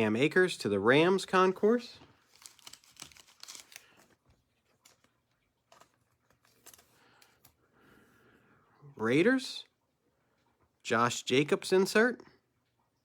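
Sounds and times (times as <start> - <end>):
cards and wrapper rustling: 2.1 - 7.6.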